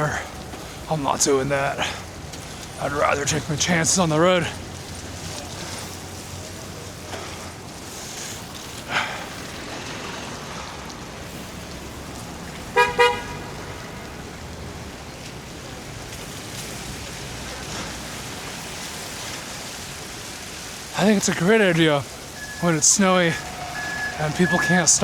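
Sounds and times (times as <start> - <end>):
traffic on wet road: 0.0 - 25.0
car horn toots: 12.8 - 13.8, 22.3 - 25.0.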